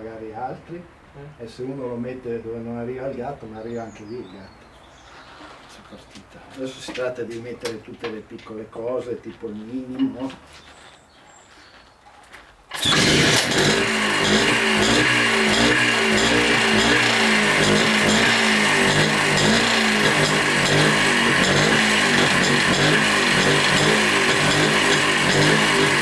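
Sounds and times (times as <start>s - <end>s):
two-stroke motorcycle engine running: 12.7s - 26.0s.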